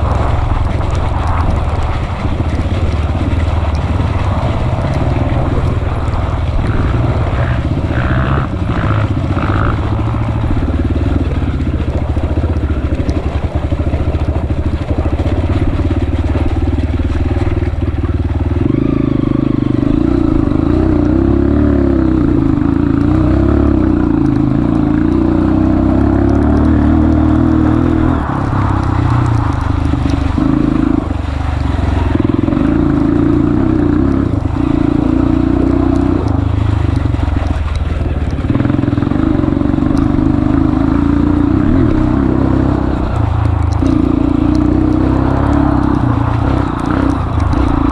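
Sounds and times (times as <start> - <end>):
motorcycle engine under load: 0.0 - 47.9.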